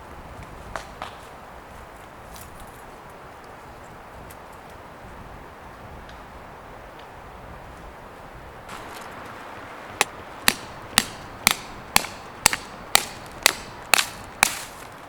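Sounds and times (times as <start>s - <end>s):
hand tool striking something hard: 10.0s - 14.8s.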